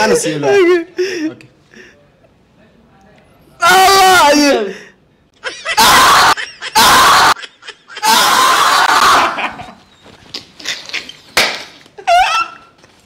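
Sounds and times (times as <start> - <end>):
men shrieking with laughter: 5.4 - 10.0, 12.0 - 12.8.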